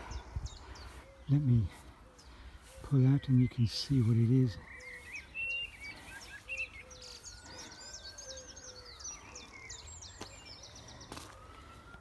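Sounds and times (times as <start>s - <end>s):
birds chirping and trilling: 0.0s - 12.0s
lower bird call: 0.0s - 12.0s.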